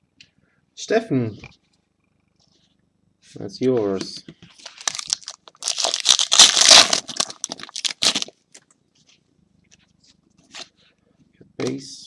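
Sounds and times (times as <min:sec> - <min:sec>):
foil wrapper crinkling and tearing: 0:04.6 - 0:08.6.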